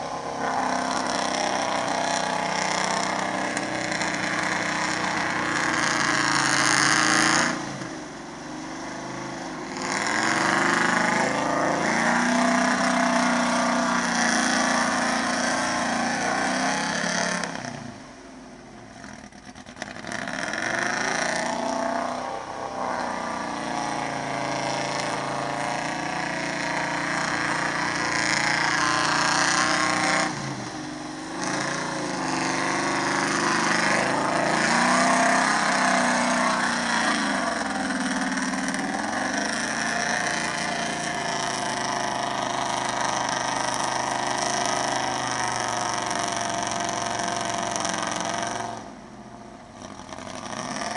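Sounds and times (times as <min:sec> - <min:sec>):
truck engine revving: 0:00.0 - 0:18.0, 0:19.0 - 0:49.0, 0:49.7 - 0:50.9.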